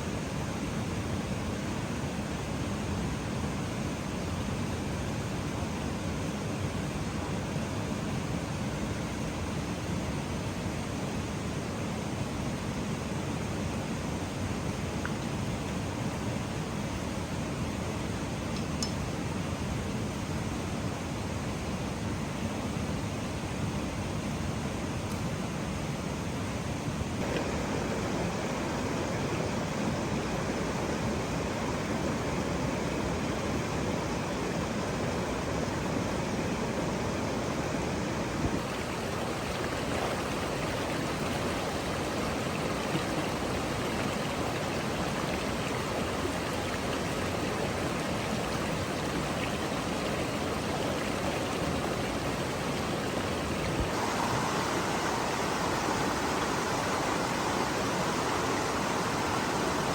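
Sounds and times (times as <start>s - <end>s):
running water rushing: 25.0s - 59.9s.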